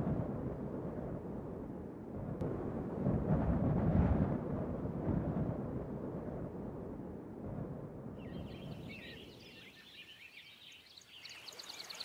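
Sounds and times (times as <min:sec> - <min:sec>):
low rumble: 0:00.0 - 0:08.9
birds chirping: 0:08.2 - 0:12.0.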